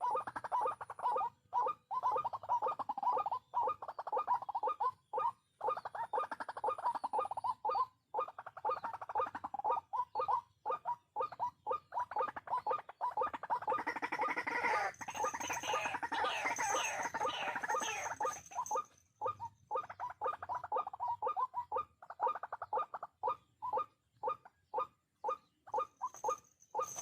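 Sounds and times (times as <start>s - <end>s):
waterhen calling: 11.8s - 21.7s.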